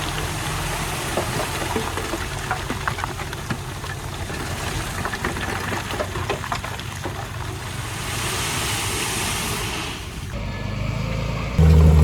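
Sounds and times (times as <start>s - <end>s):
rushing hiss: 7.9s - 10.3s
heavy diesel machinery running: 10.4s - 12.0s.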